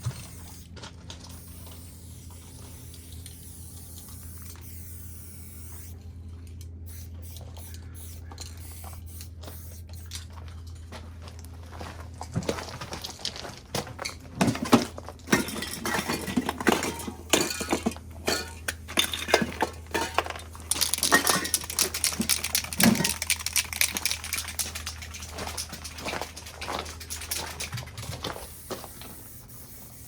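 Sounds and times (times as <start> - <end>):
spray cans clinking together: 14.4 - 30.0.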